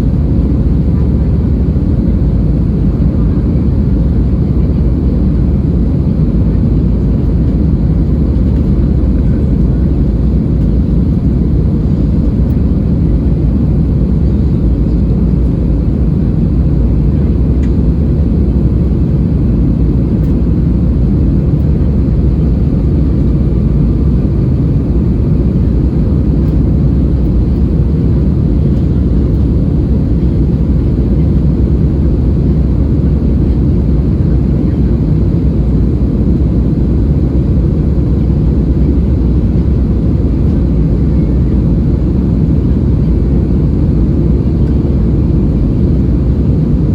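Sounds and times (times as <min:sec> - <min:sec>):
airliner cabin rumble: 0:00.0 - 0:46.9.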